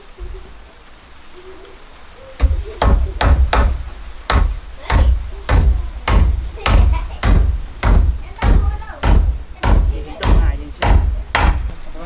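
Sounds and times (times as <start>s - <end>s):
hammer blows on wood: 2.4s - 11.9s.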